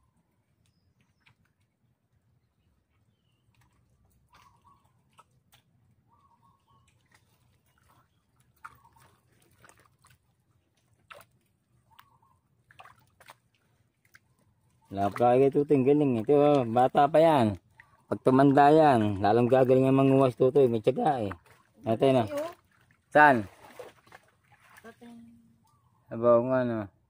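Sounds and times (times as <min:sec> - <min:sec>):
faint bird calls: 0:02.9 - 0:05.2, 0:06.0 - 0:09.6, 0:11.8 - 0:12.5, 0:17.6 - 0:18.3, 0:25.0 - 0:26.2.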